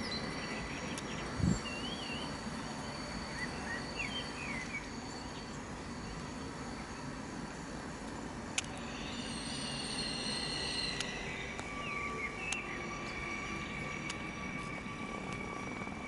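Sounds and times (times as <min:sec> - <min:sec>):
bird chirps: 0:00.0 - 0:05.6, 0:08.8 - 0:13.8
train wheels squealing: 0:00.0 - 0:16.0.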